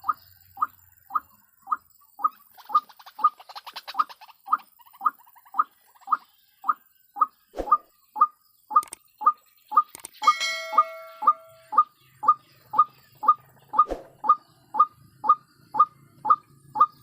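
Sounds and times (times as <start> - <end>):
waterhen calling: 0.0 - 17.0
steady multi-note tone: 10.2 - 11.9.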